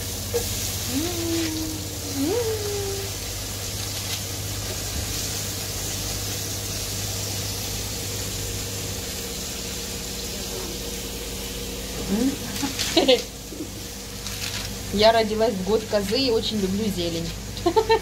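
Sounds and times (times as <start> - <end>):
spinach sizzling in oil: 0.0 - 18.0
low hum: 0.8 - 4.8.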